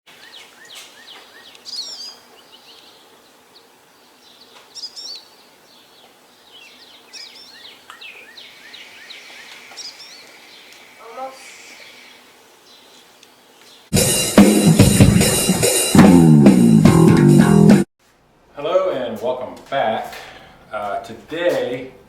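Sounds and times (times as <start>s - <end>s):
bird chirps: 0.1s - 13.9s
faint background hiss: 0.1s - 13.9s, 18.0s - 22.0s
songbirds warbling: 0.1s - 13.9s.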